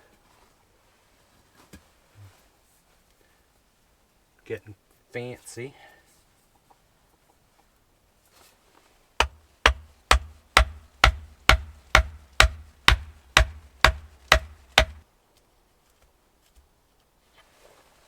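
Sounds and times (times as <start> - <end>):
hammering on wood: 9.2 - 15.0.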